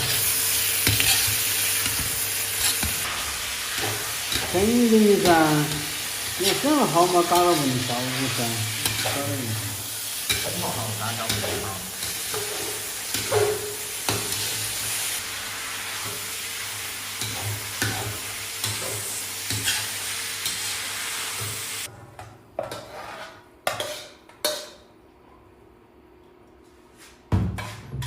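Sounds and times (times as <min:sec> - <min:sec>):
pork sizzling in a pan: 0:00.0 - 0:21.9.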